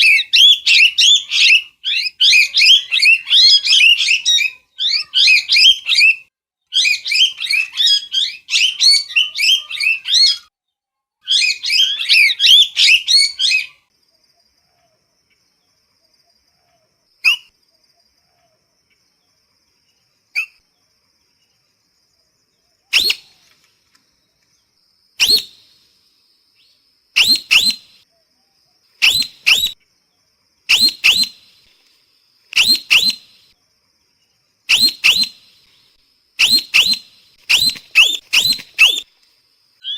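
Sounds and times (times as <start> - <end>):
parrot squawking and shrieking: 0.0 - 6.1, 6.8 - 10.5, 11.2 - 13.7.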